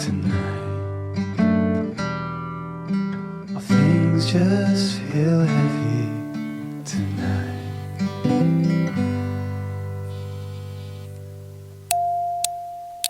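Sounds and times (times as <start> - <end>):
strummed acoustic guitar song: 0.0 - 12.3.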